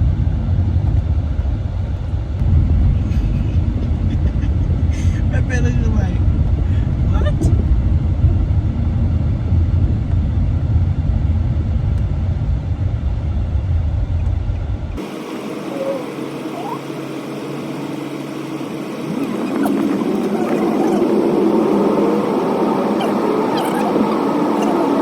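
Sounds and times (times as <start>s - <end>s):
road rumble inside car: 0.0s - 25.0s
faint voices: 15.4s - 17.3s, 19.0s - 25.0s.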